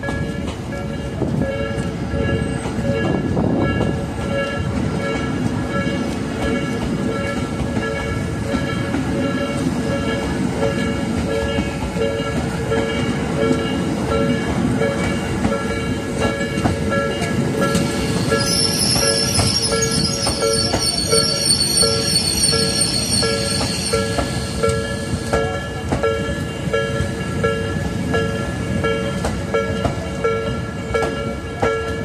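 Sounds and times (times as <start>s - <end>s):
train rumble and wheel clacks: 0.0s - 32.0s
level crossing bell clanging: 4.3s - 32.0s
high-pitched wheel squeal: 18.0s - 25.3s.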